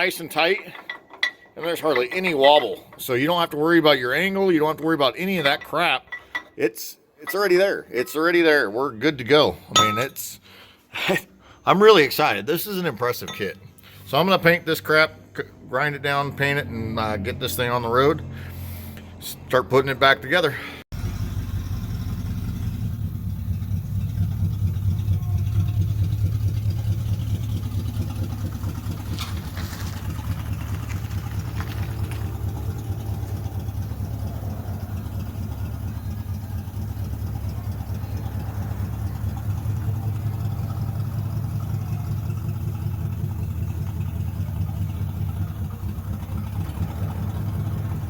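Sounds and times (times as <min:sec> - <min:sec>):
engine idling: 0:18.0 - 0:19.2, 0:20.5 - 0:48.0.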